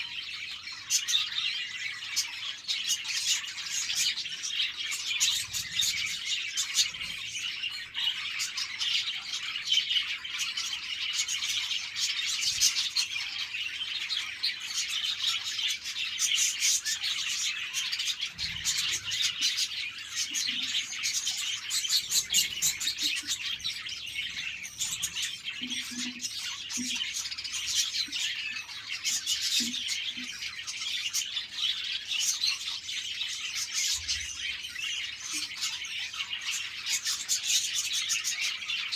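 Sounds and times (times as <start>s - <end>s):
budgerigars chirping and chattering: 0.0s - 38.9s.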